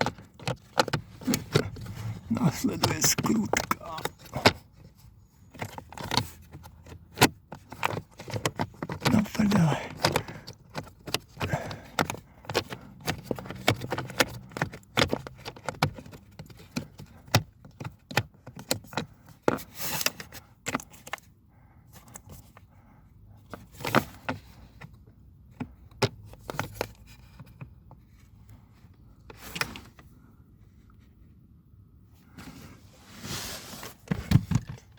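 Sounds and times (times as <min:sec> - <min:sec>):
hand tools clinking and scraping: 0:00.0 - 0:04.6.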